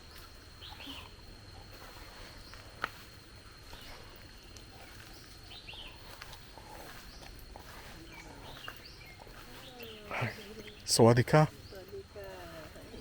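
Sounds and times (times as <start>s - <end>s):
bird chirps: 0.1s - 1.2s, 3.6s - 12.0s.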